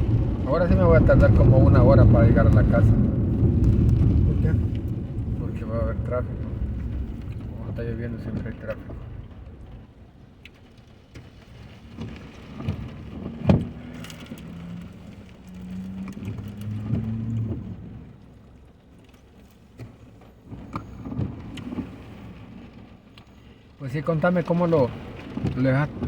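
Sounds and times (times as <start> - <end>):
low hum: 0.0 - 10.5
road and rain noise: 0.0 - 26.0.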